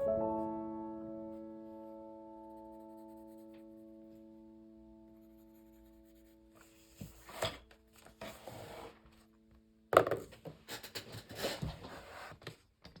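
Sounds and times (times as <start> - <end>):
pencil scratching on paper: 2.6 - 3.6, 5.1 - 7.6.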